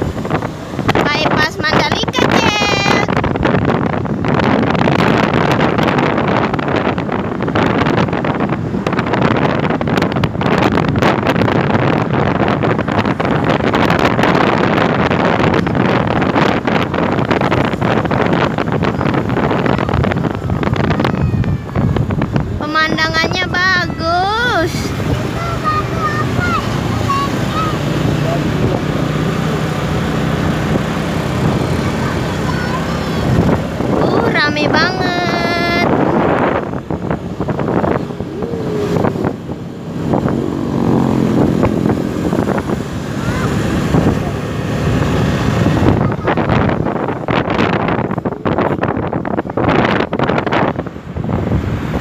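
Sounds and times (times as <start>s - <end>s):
moving vehicle noise: 0.0s - 52.0s
traffic engines rumbling: 0.0s - 52.0s
wind buffeting microphone: 0.0s - 52.0s.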